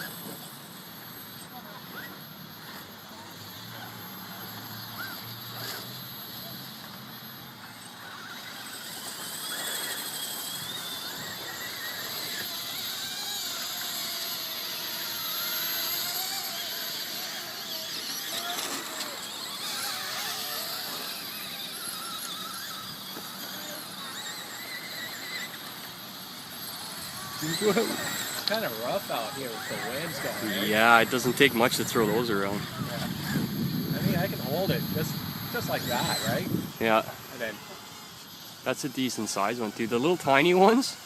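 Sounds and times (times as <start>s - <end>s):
quadcopter motors whining: 0.0s - 41.0s.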